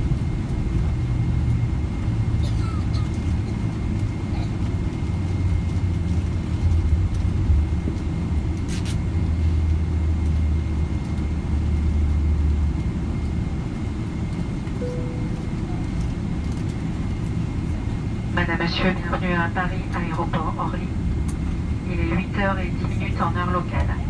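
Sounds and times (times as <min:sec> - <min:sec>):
jet engine cabin rumble: 0:00.0 - 0:24.0
faint high whine: 0:14.8 - 0:17.0.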